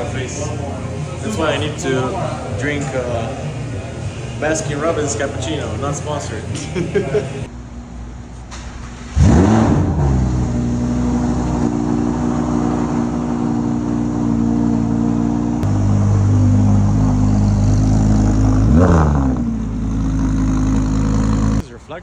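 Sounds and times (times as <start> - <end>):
car engine revving: 8.8 - 21.6.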